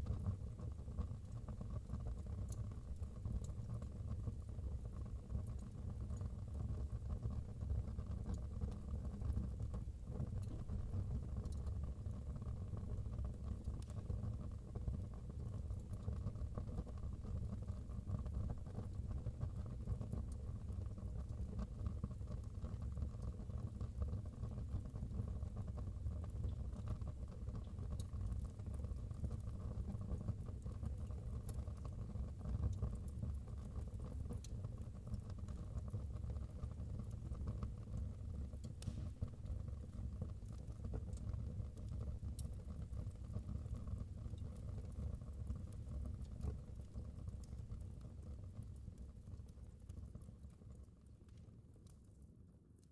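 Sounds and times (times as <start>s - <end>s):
wood fire burning: 25.2s - 52.9s.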